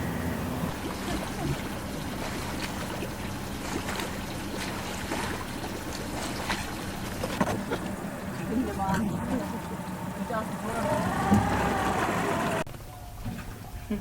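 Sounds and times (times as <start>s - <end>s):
boat motor idling: 0.0s - 13.6s
water lapping against hull: 0.4s - 14.0s.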